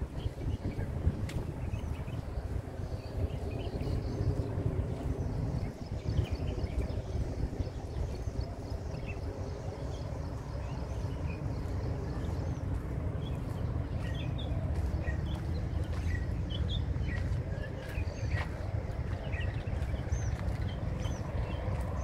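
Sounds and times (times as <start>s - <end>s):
steady low rumble: 0.0s - 22.0s
small birds chirping: 0.2s - 22.0s.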